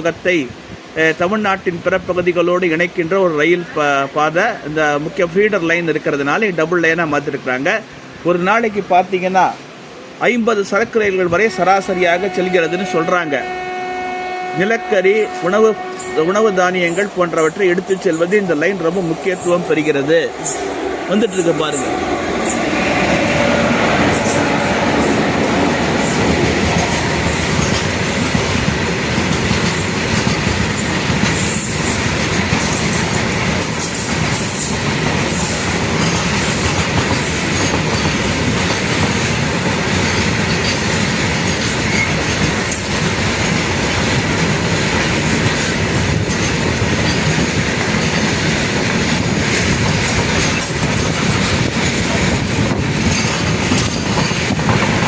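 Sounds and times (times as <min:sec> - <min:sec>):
freight train passing: 0:00.0 - 0:55.0
train wheels on rails: 0:13.2 - 0:55.0.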